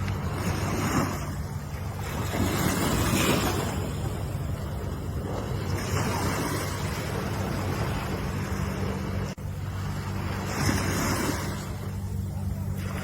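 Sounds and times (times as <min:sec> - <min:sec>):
ocean waves washing: 0:00.0 - 0:13.0
steady low hum: 0:00.0 - 0:13.0.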